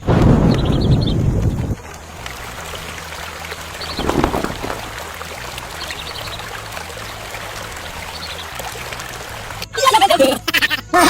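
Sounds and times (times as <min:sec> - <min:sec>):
water trickling: 0:00.5 - 0:09.9.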